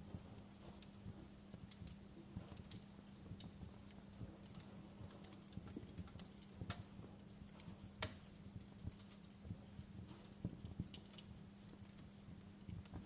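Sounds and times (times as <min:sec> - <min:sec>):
faint low hum: 0:00.0 - 0:13.0
wood fire crackling: 0:00.0 - 0:13.0.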